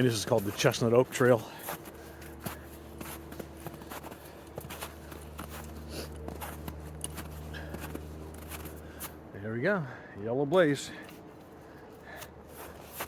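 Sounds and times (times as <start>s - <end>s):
footsteps in snow: 0.0s - 9.2s, 12.4s - 13.0s
steady low hum: 0.0s - 13.0s.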